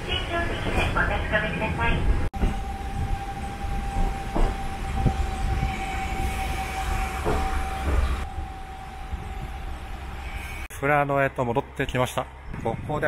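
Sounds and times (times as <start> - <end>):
train low rumble: 0.0 - 13.0
high whine: 2.4 - 10.8.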